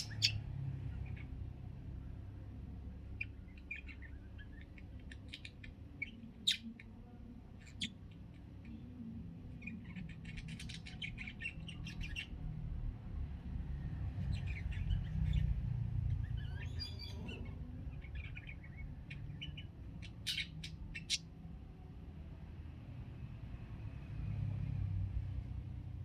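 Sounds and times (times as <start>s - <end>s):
budgerigar chattering: 0.0s - 1.4s, 3.1s - 6.9s, 9.6s - 12.3s, 16.1s - 21.3s.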